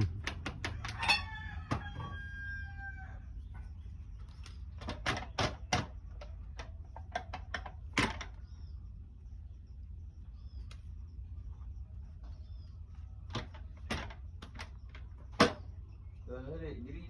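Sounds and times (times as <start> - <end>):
rooster crowing: 0.7 - 3.3.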